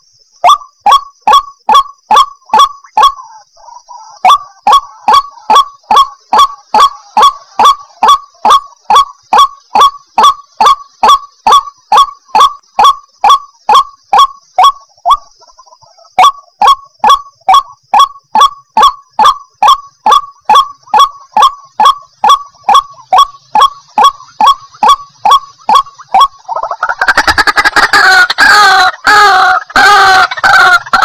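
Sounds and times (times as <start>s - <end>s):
waterhen harsh calls: 0.0s - 31.0s.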